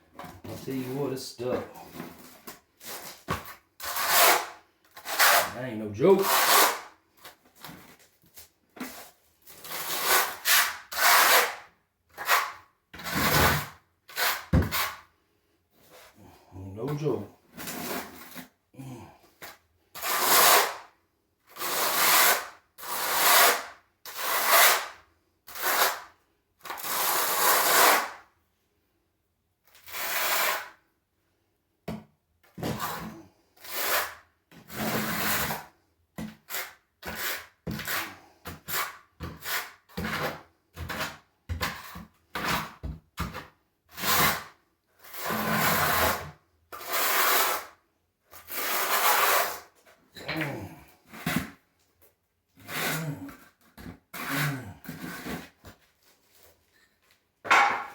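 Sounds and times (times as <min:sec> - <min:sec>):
trowel scraping mortar: 0:00.1 - 0:15.1, 0:15.8 - 0:20.9, 0:21.5 - 0:28.2, 0:29.7 - 0:30.8, 0:32.6 - 0:51.6, 0:52.6 - 0:56.9.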